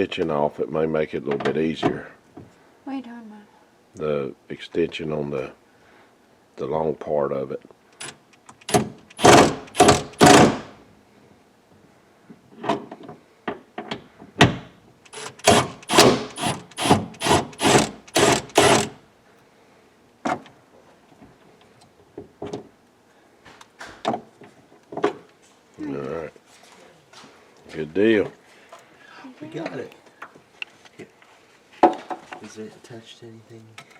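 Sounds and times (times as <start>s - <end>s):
socket ratchet clicking: 8.0s - 10.6s, 15.1s - 19.0s
knocks: 8.7s - 10.7s.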